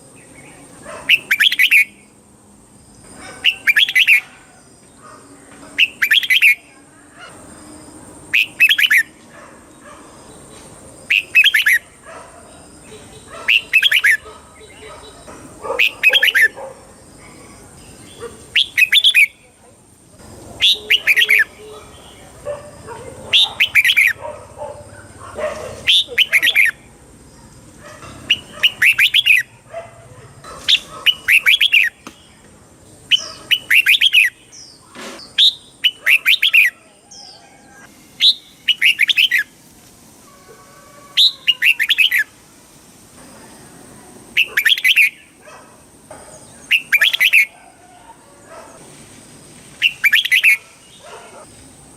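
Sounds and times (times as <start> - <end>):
bird singing whistled notes: 1.2 - 2.1, 5.8 - 6.7, 8.4 - 9.1, 11.1 - 11.8, 18.6 - 19.4, 20.6 - 21.7, 28.3 - 29.5, 33.1 - 34.6, 38.2 - 39.5, 41.2 - 42.3, 46.7 - 47.5, 49.8 - 50.6.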